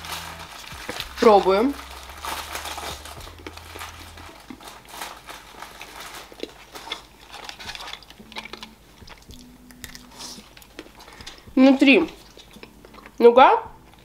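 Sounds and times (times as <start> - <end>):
wrapper crinkle: 0.0 - 13.2
chewing candy: 5.5 - 13.2.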